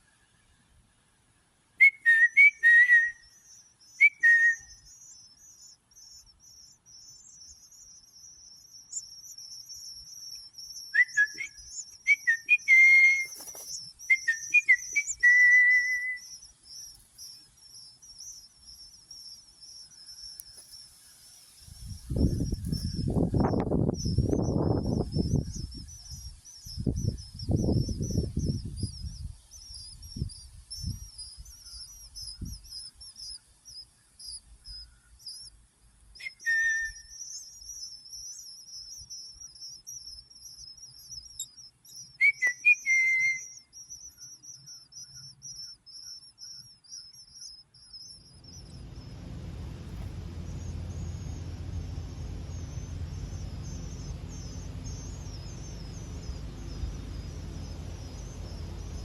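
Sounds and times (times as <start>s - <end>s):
whistled calls gliding in pitch: 1.8s - 20.7s, 36.2s - 59.0s
low steady rumble: 21.7s - 29.4s, 48.1s - 59.0s
high-pitched chirring: 48.4s - 59.0s.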